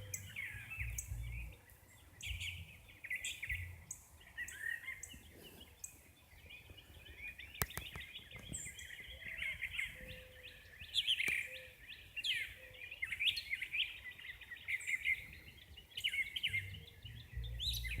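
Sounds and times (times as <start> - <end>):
songbirds chirping and singing: 0.0 - 18.0
low rumble: 0.8 - 1.5
sharp clicks: 7.6 - 8.5.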